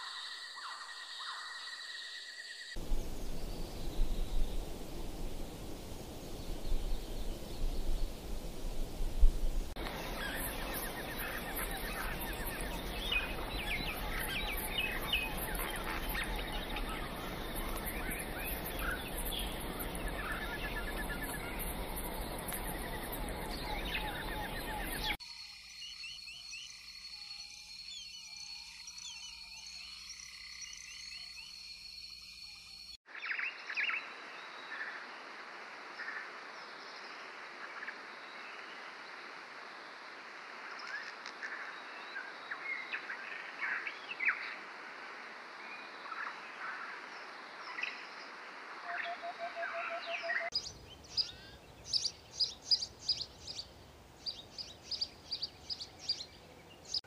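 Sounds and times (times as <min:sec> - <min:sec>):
small birds chirping: 0:00.1 - 0:34.0, 0:50.2 - 0:57.0
steady background noise: 0:09.7 - 0:25.2.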